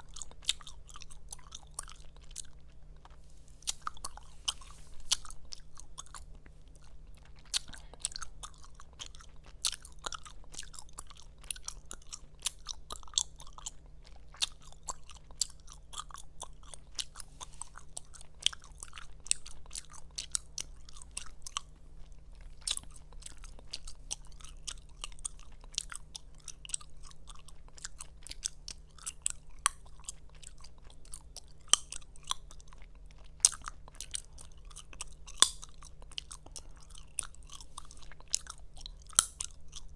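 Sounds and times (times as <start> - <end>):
gum chewing mouth smacking: 0.0 - 39.9
loud sharp gum snaps: 39.1 - 39.4.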